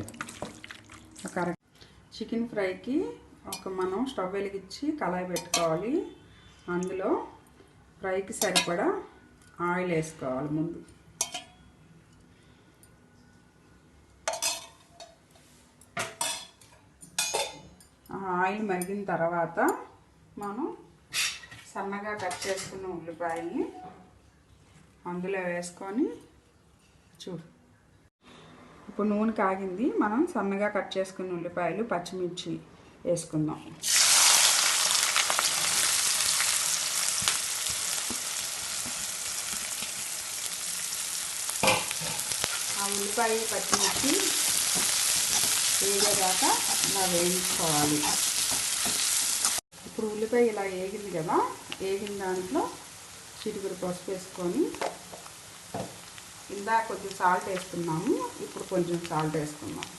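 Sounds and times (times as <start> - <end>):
metal cookware clattering: 8.4 - 8.8, 11.2 - 11.6, 14.3 - 15.2, 16.0 - 18.0, 41.6 - 42.7, 43.5 - 49.1
onions sizzling in hot oil: 33.8 - 59.9.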